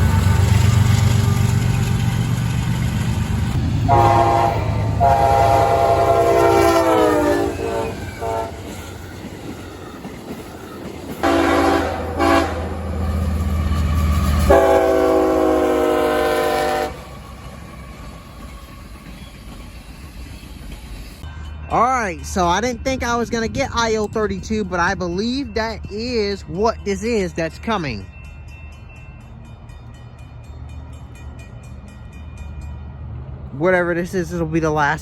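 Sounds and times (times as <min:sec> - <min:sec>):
passing train rumble: 0:00.0 - 0:35.0
locomotive air horn blasts: 0:03.9 - 0:08.8, 0:11.2 - 0:13.0, 0:14.5 - 0:17.1.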